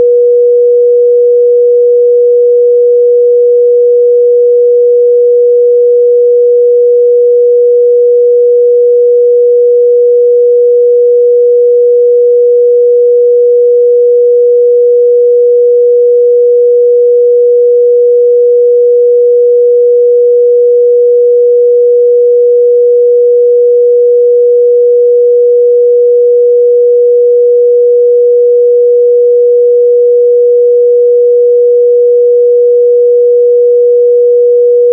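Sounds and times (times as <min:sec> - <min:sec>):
sine wave test tone: 0:00.0 - 0:34.9.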